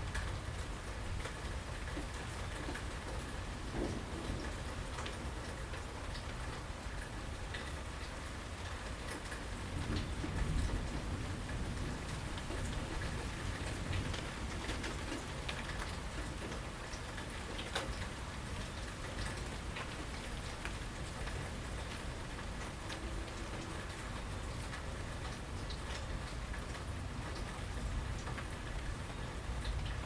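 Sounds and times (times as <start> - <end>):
raindrops ticking: 0.0 - 30.0
steady rain on porch: 0.0 - 30.0.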